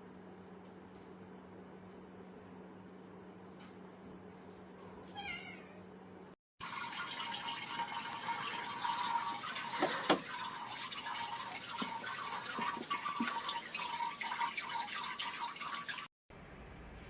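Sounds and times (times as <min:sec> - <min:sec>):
running water splashing: 0:06.6 - 0:16.1.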